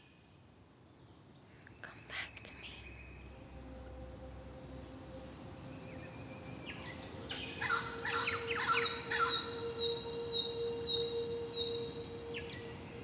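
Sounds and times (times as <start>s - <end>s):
steady low tone: 1.6s - 13.0s
birds chirping and calling: 5.0s - 13.0s.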